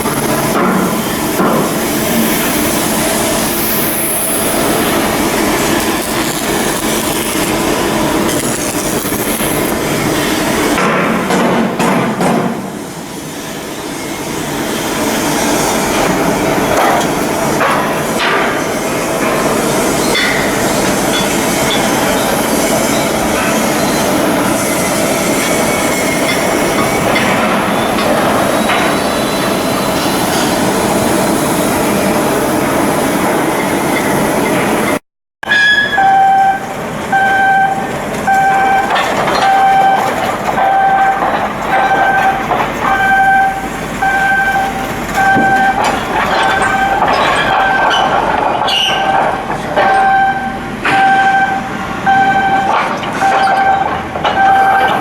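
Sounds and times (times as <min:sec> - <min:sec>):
shipyard machinery noise: 0:00.0 - 0:55.0
electronic warning beep: 0:35.5 - 0:47.9, 0:49.9 - 0:55.0.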